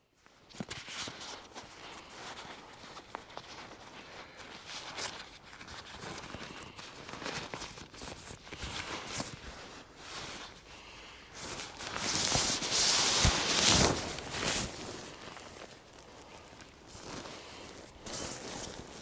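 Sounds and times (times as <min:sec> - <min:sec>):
footsteps crunching and rustling: 0:11.3 - 0:19.0.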